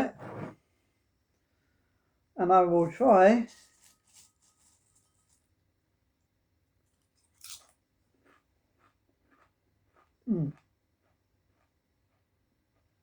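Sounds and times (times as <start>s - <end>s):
faint chewing crunches: 6.9s - 13.0s
potato crisp crunch: 7.0s - 12.3s.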